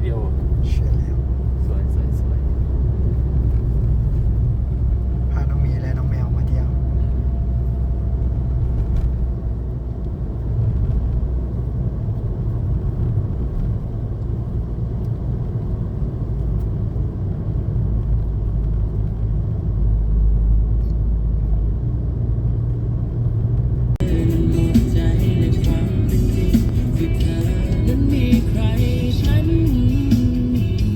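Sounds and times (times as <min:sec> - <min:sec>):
boat engine rumbling: 0:23.9 - 0:30.9.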